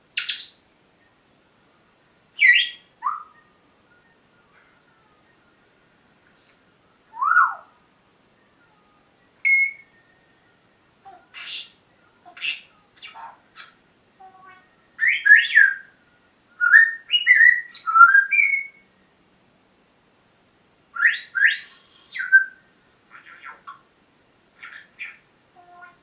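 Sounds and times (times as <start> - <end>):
parrot whistling and chattering: 2.4 - 3.4, 9.4 - 9.9, 11.1 - 13.8, 21.0 - 23.8, 24.6 - 26.0.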